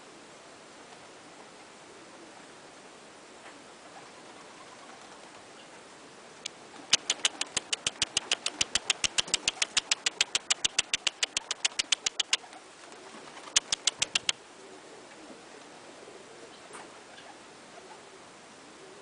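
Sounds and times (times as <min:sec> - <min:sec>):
pigeons pecking grain: 0:06.5 - 0:17.0.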